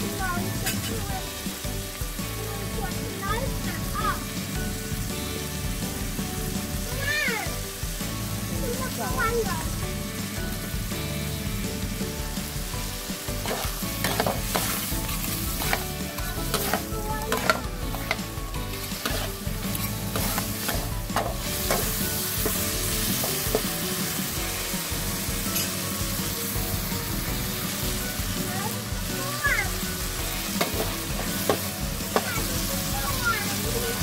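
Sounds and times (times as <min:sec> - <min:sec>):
shrimp sizzling in oil: 0:00.0 - 0:34.0
metal ladle scraping wok: 0:13.4 - 0:24.4, 0:25.5 - 0:25.9.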